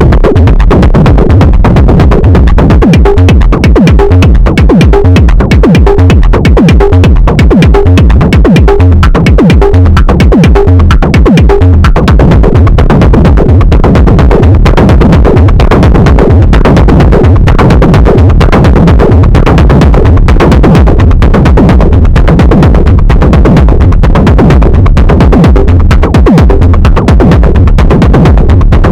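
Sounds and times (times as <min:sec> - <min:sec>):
deep bass: 0:00.0 - 0:28.9
techno percussion pattern: 0:00.0 - 0:28.9.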